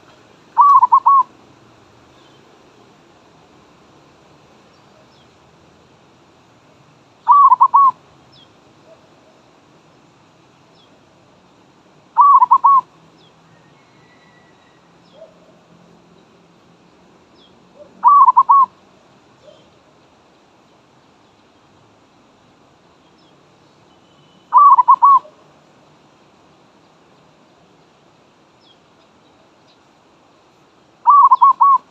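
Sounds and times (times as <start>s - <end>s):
small birds chirping: 0.0s - 1.3s, 2.0s - 2.8s, 4.6s - 5.5s, 6.7s - 11.1s, 12.2s - 18.8s, 19.4s - 25.4s, 26.5s - 31.9s
dove cooing: 0.6s - 1.3s, 7.2s - 8.0s, 12.2s - 12.9s, 17.8s - 18.8s, 24.5s - 25.4s, 31.0s - 31.9s.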